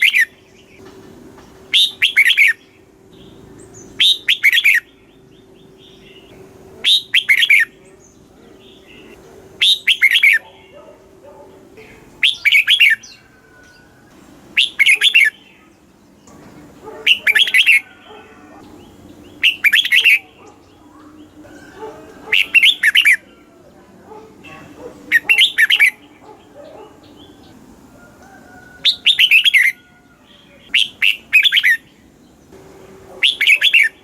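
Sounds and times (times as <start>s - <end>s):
bird singing warbled phrases: 0.0s - 0.8s, 1.6s - 28.2s, 28.8s - 34.0s.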